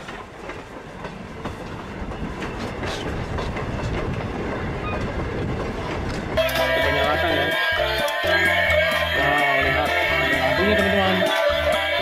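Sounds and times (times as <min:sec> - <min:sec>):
steam train wheels on rails: 0:00.0 - 0:08.5.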